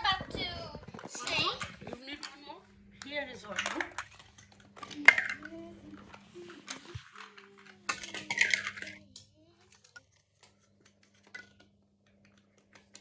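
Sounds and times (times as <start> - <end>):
plastic bricks clicking and clattering: 3.6 - 13.0.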